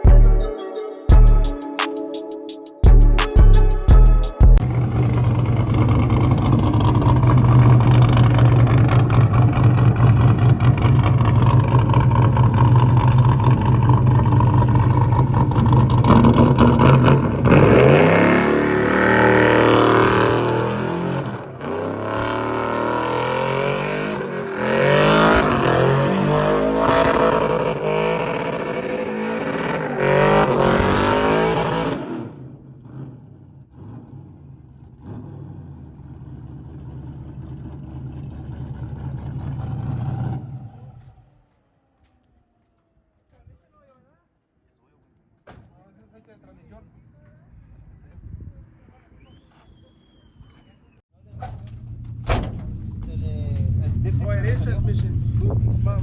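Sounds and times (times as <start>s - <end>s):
truck engine revving: 4.6s - 37.0s.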